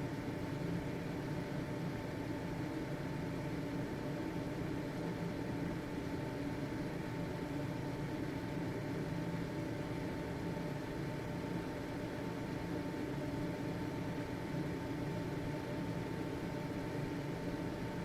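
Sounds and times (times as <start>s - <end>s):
ventilation fan humming: 0.0s - 18.0s.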